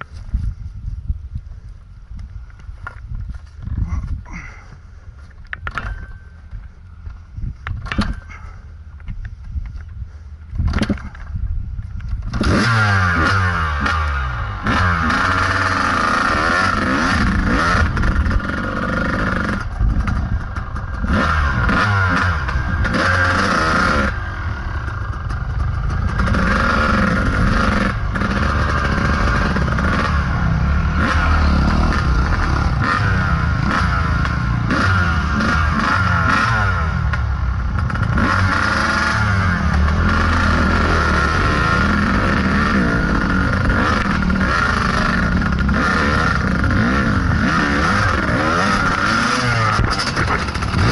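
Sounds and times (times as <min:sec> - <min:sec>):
dirt bike engine revving: 0:12.3 - 0:50.9.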